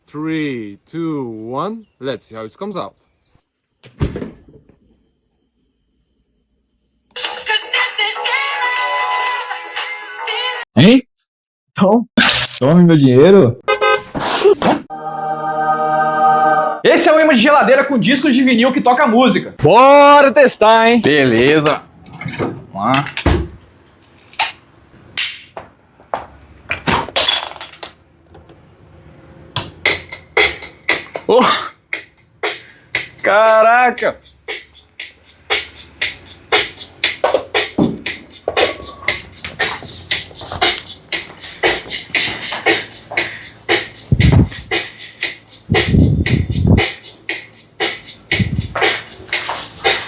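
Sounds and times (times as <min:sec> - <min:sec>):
steady clicking beat: 0:29.6 - 0:50.0
song with vocal percussion: 0:32.0 - 0:50.0.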